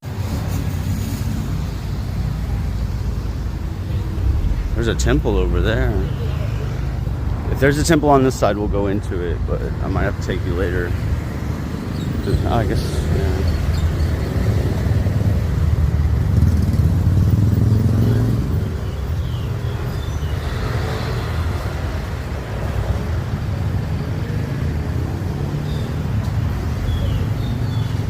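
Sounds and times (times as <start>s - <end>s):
vehicle engine rumble: 0.0s - 19.5s
traffic hum: 0.0s - 28.0s.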